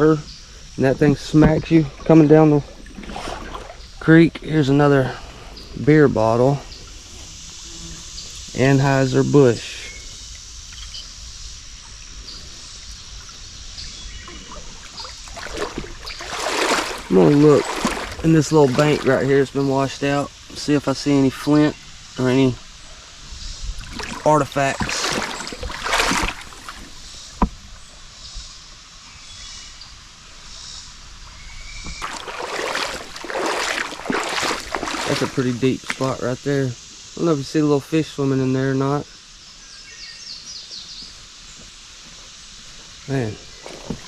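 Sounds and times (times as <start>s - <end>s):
creek water trickling: 0.0s - 44.0s
footsteps splashing in water: 14.2s - 19.4s, 23.8s - 27.1s, 31.9s - 36.2s, 43.6s - 44.0s.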